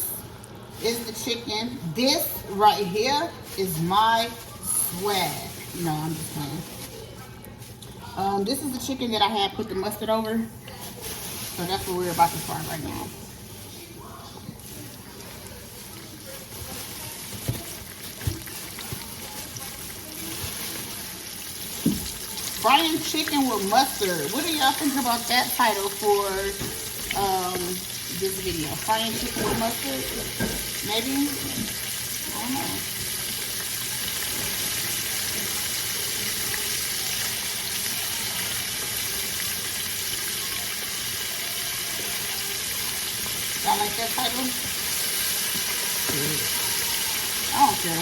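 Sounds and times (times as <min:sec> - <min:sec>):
chicken sizzling in grease: 0:10.7 - 0:48.0.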